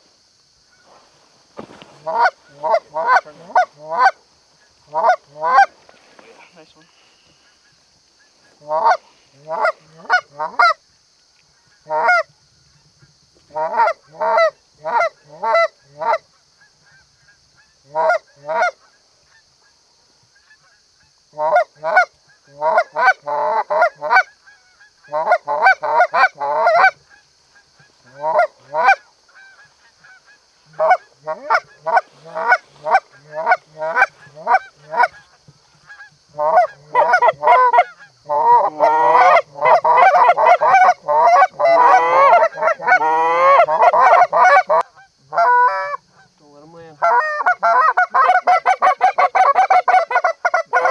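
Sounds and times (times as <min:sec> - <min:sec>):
faint high hiss: 0:00.0 - 0:50.6
goose honking: 0:01.6 - 0:04.2, 0:04.9 - 0:06.8, 0:28.0 - 0:50.9.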